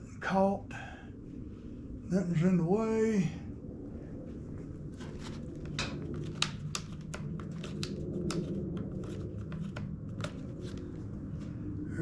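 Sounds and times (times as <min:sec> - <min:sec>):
low hum: 0:00.0 - 0:12.0
plastic and metal clicks and rattles: 0:05.6 - 0:10.8.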